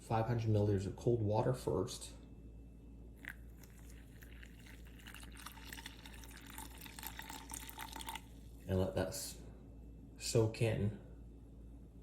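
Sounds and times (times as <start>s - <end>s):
water pouring and dripping: 3.2s - 8.3s.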